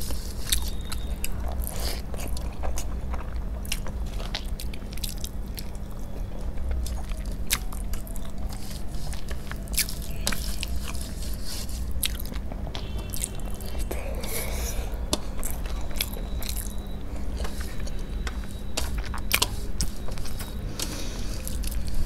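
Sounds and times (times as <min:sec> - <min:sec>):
person chewing with wet clicks: 0:00.0 - 0:22.0
steady low hum: 0:00.0 - 0:22.0
fingers mixing rice on steel plate: 0:06.4 - 0:22.0.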